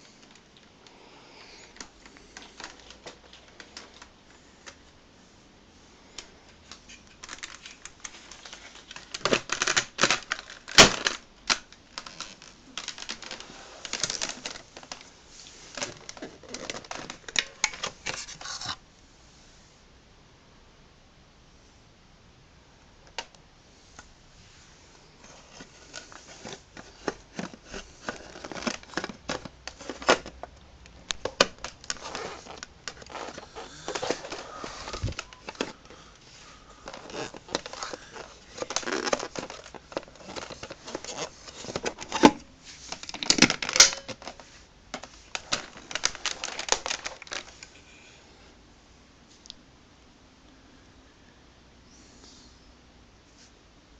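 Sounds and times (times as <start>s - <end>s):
crinkling: 0.0s - 18.8s, 23.0s - 48.2s
clicks and knocks of handling: 36.8s - 47.7s.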